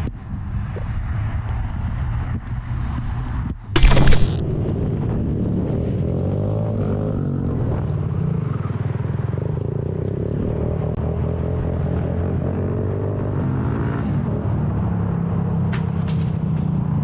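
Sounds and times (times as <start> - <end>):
short loud noise burst: 3.8 - 4.6.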